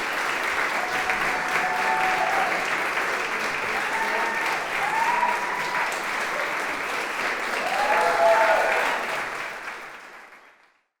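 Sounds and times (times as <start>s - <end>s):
audience applauding: 0.0s - 10.9s
people cheering and whooping: 0.7s - 2.8s, 3.6s - 6.6s, 7.5s - 9.1s.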